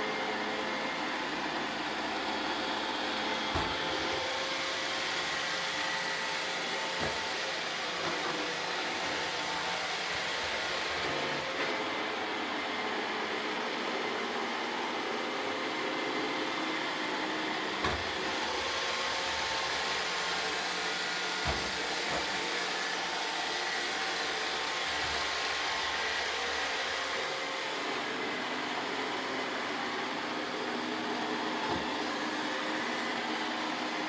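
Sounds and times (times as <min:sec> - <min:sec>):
robot vacuum running: 0:00.0 - 0:34.0.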